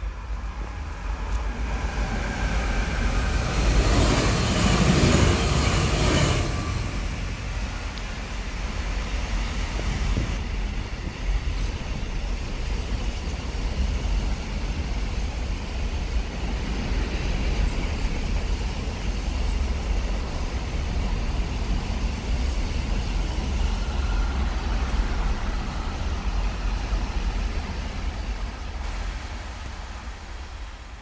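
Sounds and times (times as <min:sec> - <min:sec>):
freight train rumbling past: 0:00.0 - 0:31.0.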